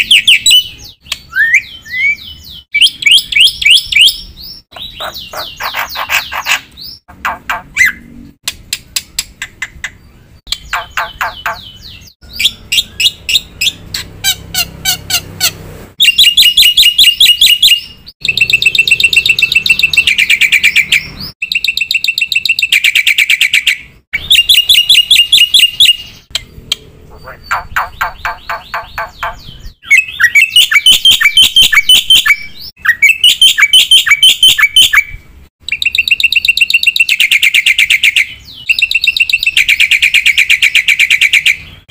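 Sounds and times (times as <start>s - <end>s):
bird singing chattering trills: 0.0s - 8.1s, 8.8s - 15.3s, 16.0s - 41.7s.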